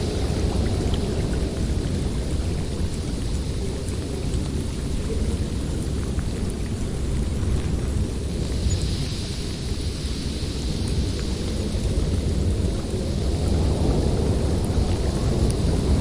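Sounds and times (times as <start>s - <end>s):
hiss of wind gusts: 0.0s - 16.0s
wind rumbling: 0.0s - 16.0s.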